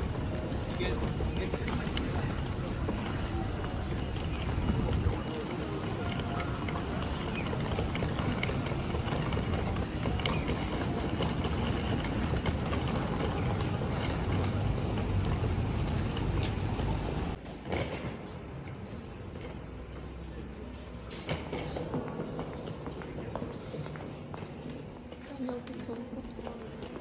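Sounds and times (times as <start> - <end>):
low rumbling noise: 0.0 - 17.4.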